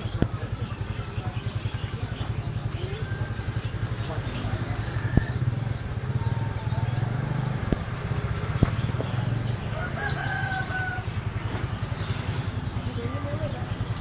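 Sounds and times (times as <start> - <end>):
rooster crowing: 9.7 - 11.3.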